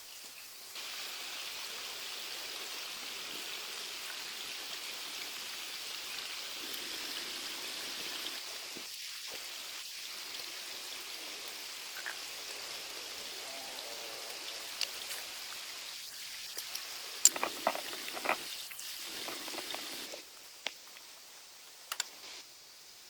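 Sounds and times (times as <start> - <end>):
water hissing: 5.9 - 20.4.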